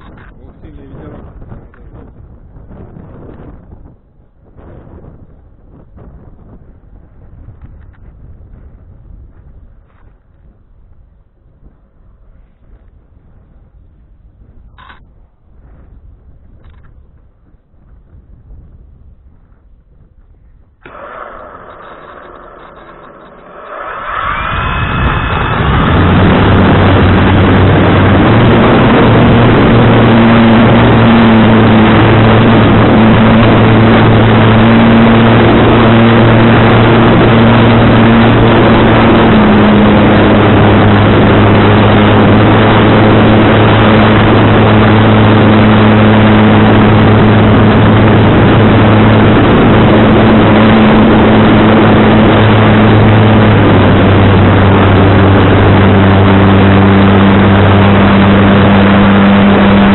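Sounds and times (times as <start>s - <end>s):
propeller drone: 0.0s - 18.2s, 19.0s - 59.9s
wind rushing: 18.0s - 59.9s.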